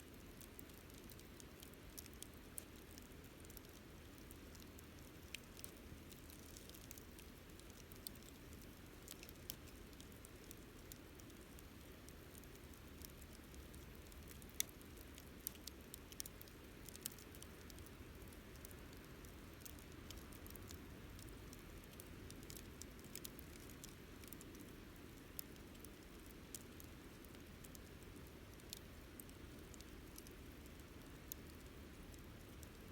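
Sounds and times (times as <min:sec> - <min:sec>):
campfire crackling: 0:00.0 - 0:32.9
faint low hiss: 0:00.0 - 0:32.9.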